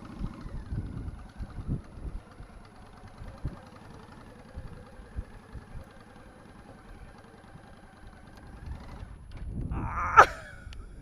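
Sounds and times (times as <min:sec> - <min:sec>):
motorcycle engine running: 0:00.0 - 0:09.9
wind buffeting microphone: 0:00.2 - 0:06.0, 0:08.5 - 0:11.0.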